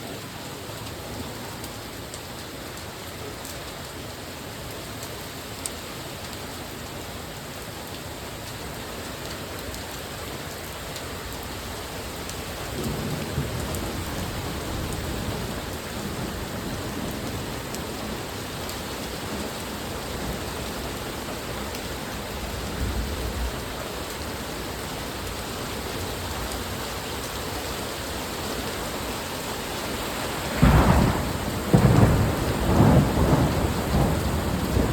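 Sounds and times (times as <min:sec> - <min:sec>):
rain pattering: 0:00.0 - 0:34.9
thunder rumbles: 0:12.7 - 0:18.2, 0:30.4 - 0:34.9.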